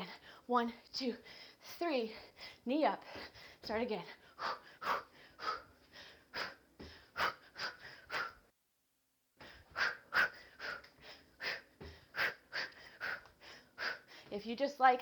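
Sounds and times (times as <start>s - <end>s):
hard rhythmic exhaled breaths: 1.2s - 8.5s, 9.4s - 14.4s.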